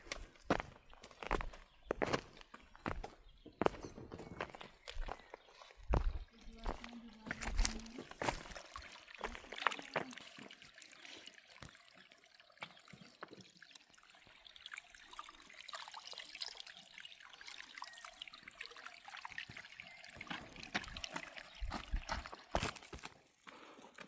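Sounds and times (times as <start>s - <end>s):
water trickling: 5.0s - 24.0s.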